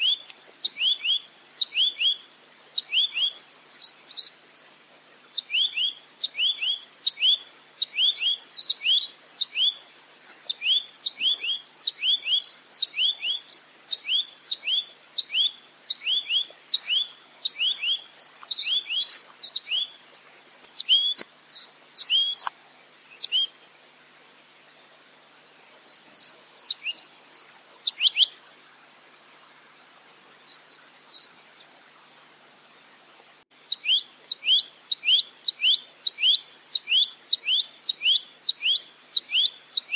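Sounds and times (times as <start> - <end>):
nuthatch calling in rapid runs: 10.5 - 20.0.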